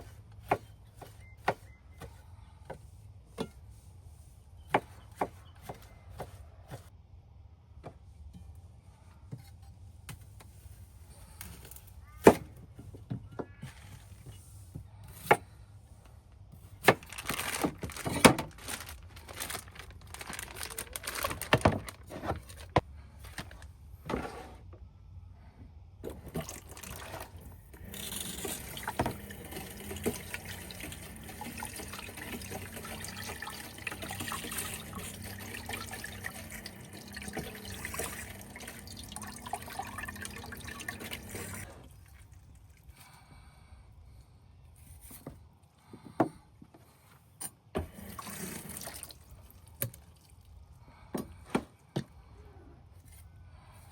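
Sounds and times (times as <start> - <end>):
water pouring into container: 26.1 - 42.8, 48.0 - 50.3.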